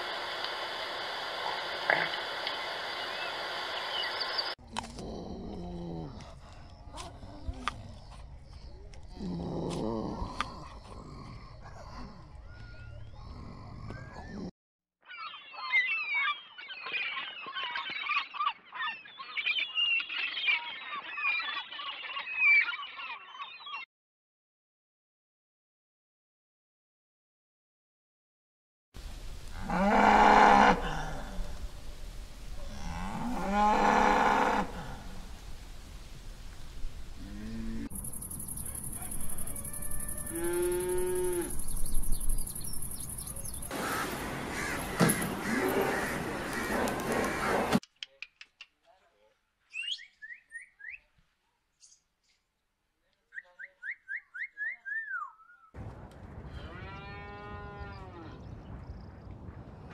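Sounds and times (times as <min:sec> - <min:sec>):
cattle mooing: 0:29.5 - 0:31.4, 0:32.7 - 0:35.1, 0:37.2 - 0:37.9, 0:39.6 - 0:41.6
gulls calling: 0:37.8 - 0:47.8.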